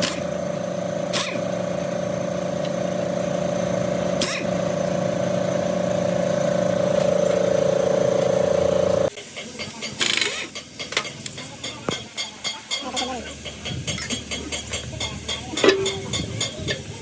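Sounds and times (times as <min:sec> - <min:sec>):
small motor humming: 0:00.0 - 0:09.1.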